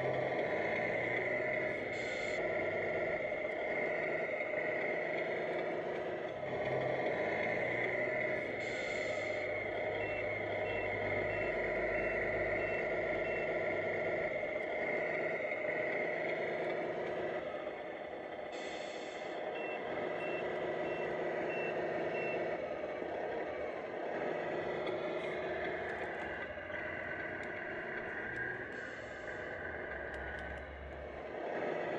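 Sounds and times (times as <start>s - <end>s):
toy truck engine running: 0.0s - 31.9s
reversing beeps: 7.4s - 17.4s, 18.6s - 23.4s.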